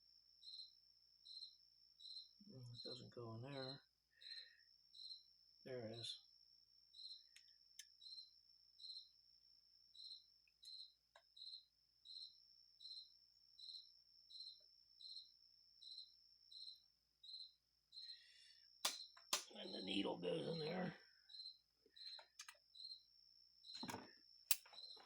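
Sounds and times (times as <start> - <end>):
cricket chirping: 0.0 - 25.0
clicks: 23.8 - 25.0.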